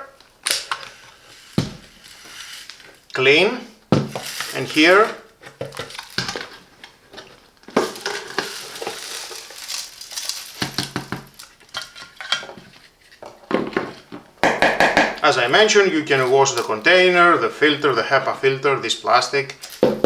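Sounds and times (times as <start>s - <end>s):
plastic parts clicking and clattering: 0.0s - 3.2s, 3.9s - 20.0s
rustling: 0.0s - 20.0s.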